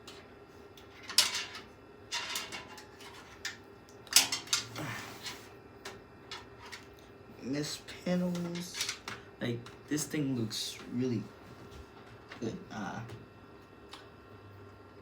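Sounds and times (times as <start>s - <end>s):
hard panels clattering and clicking: 1.0s - 4.7s.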